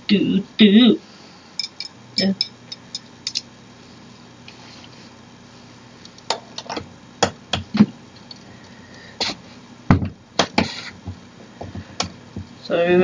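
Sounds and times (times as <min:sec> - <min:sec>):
metal chair parts clicking: 0:01.6 - 0:03.5.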